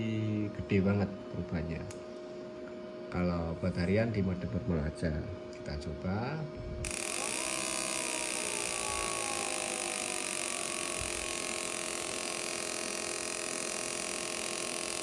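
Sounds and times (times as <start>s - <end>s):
small motorcycle engine revving: 6.9s - 15.0s.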